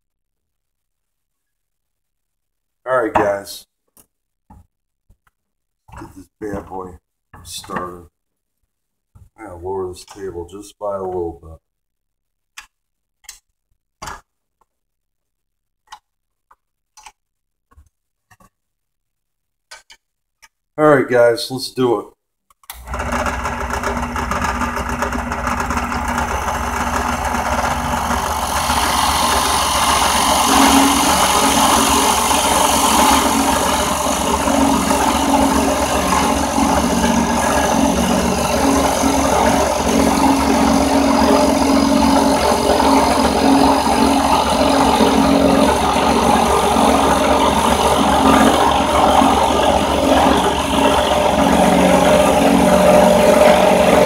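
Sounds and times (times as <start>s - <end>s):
drill press motor hum: 22.7s - 54.0s
drill bit grinding through workpiece: 22.8s - 54.0s.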